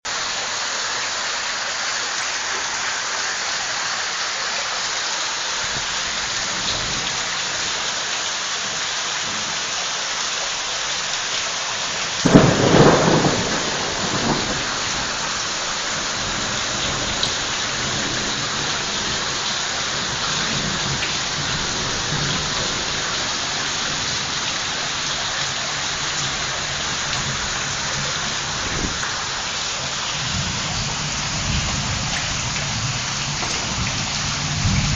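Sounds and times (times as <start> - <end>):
heavy rain falling: 0.0 - 34.9
loud thunderclap rumbling: 12.2 - 34.9.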